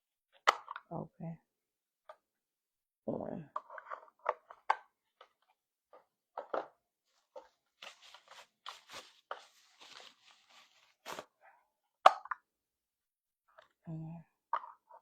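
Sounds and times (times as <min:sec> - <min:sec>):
crinkling crunching noise: 0:06.4 - 0:11.3.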